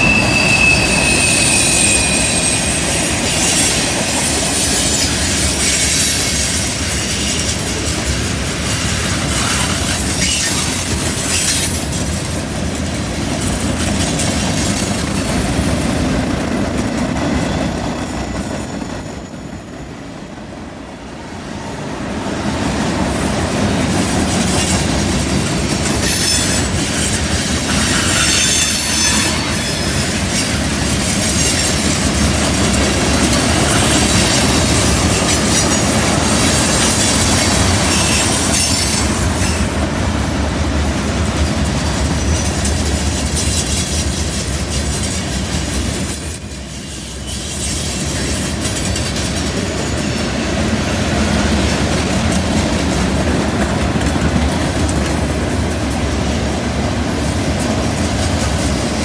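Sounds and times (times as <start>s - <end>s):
high wheel squeal: 0.0s - 7.9s, 8.6s - 11.8s, 24.4s - 39.8s, 42.2s - 50.2s
steel wheels rumbling on rail: 0.0s - 59.0s
wheels clicking over rail joints: 40.8s - 46.3s, 47.2s - 50.4s.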